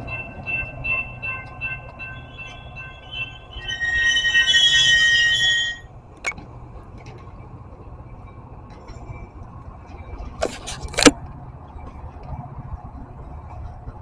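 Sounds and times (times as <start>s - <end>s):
train brakes squealing: 0.0s - 6.0s
standing train rumble: 0.0s - 14.0s.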